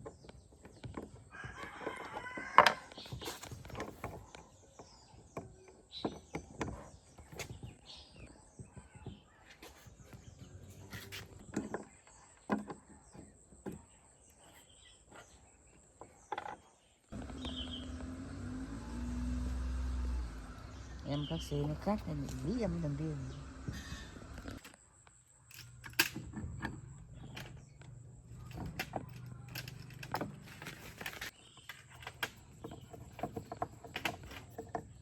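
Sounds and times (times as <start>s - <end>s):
rooster crowing: 1.3s - 2.9s
sharp clicks and light knocks: 24.2s - 35.0s.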